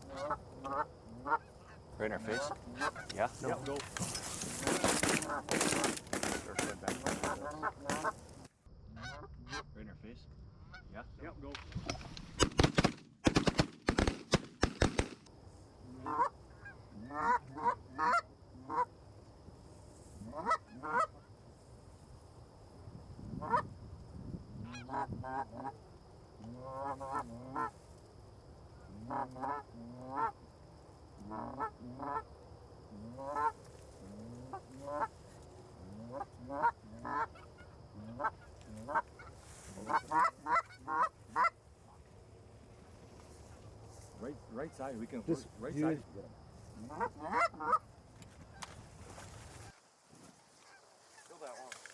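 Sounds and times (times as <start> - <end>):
goose honking: 0.0 - 9.6, 16.0 - 18.9, 20.2 - 21.1, 33.1 - 35.2, 36.0 - 41.6, 46.8 - 47.8
shotgun blasts: 12.4 - 15.3.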